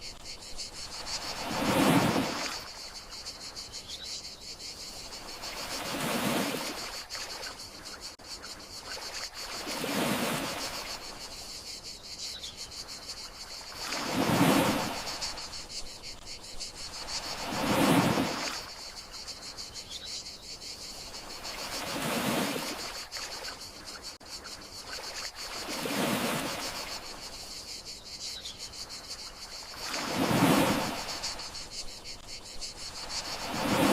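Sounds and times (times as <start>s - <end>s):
gentle sea waves washing ashore: 0.0s - 3.5s, 4.8s - 7.9s, 8.8s - 11.4s, 13.0s - 15.8s, 16.7s - 19.5s, 21.0s - 24.2s, 24.8s - 27.5s, 29.2s - 33.9s
crickets trilling: 0.0s - 33.9s.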